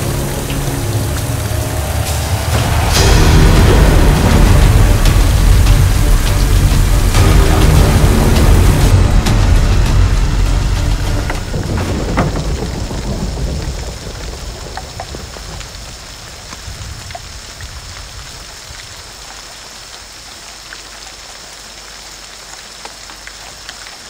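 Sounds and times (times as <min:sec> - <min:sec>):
low rumble: 0:00.0 - 0:18.0
steady rain: 0:00.0 - 0:24.0
water drips: 0:00.0 - 0:24.0.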